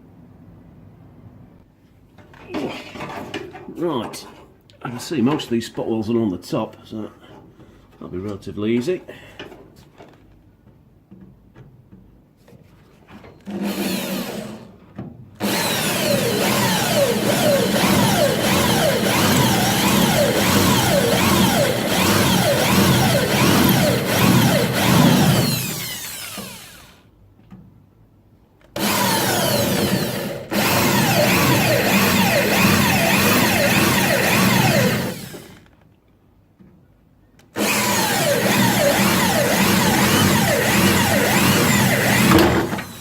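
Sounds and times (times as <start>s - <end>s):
power drill cutting steel: 13.5s - 14.7s, 15.4s - 27.0s, 28.8s - 35.6s, 37.6s - 43.0s.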